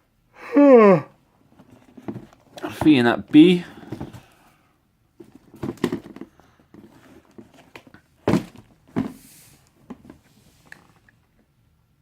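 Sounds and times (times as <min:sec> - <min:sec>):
dull thuds: 0:08.2 - 0:09.2.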